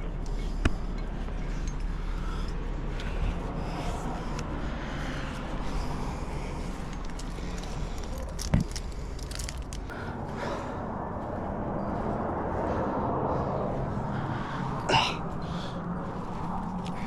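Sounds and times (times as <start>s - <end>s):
climber rustling and scraping on rock: 6.4s - 9.9s.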